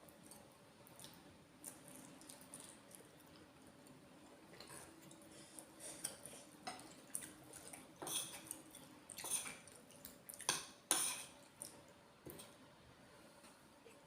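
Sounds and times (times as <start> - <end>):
cutlery scraping a plate: 8.0 - 8.4, 10.5 - 11.4.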